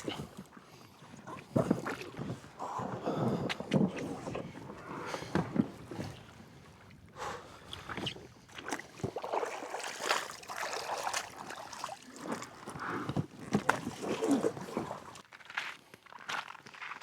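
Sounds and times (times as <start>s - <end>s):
water splashing and trickling: 7.7s - 15.2s.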